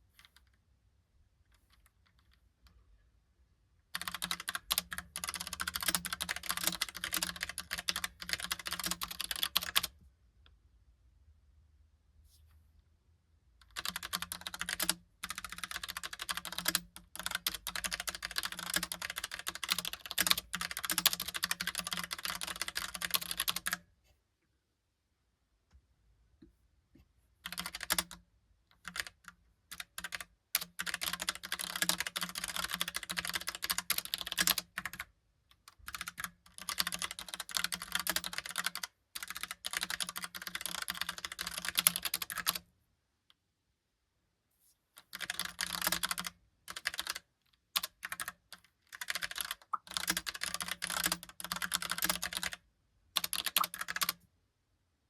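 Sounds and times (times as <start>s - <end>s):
typing on mechanical keyboard: 3.9s - 10.0s, 13.6s - 23.8s, 27.4s - 28.2s, 28.8s - 42.6s, 45.0s - 52.6s, 53.2s - 54.2s.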